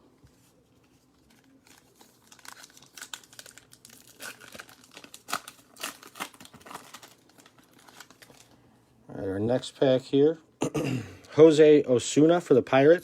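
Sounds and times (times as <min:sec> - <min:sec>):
plastic wrapper crinkling and tearing: 0:00.8 - 0:08.6.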